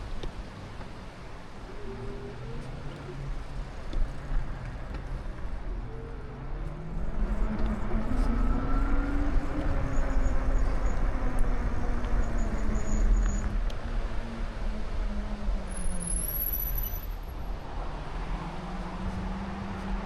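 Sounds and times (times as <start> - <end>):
vehicle engine drone: 0.0 - 20.0.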